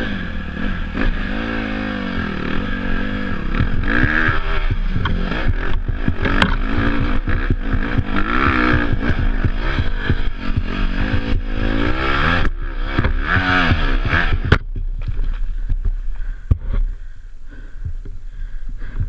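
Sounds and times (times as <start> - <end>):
dirt bike engine revving: 0.0 - 17.8
bike knocks and rattles: 3.5 - 17.0.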